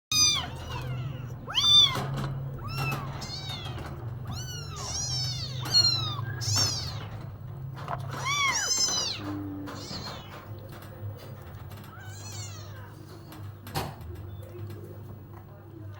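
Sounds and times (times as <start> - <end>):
cat meowing: 0.1 - 7.2, 8.1 - 10.4, 11.9 - 12.9.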